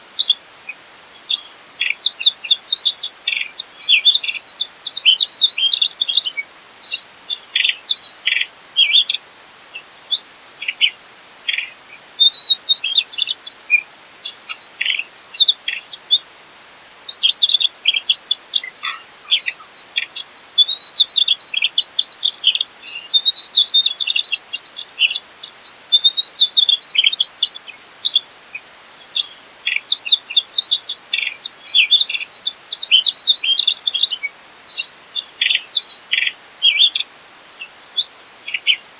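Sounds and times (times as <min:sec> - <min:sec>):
bird chirping and trilling: 0:16.0 - 0:25.2.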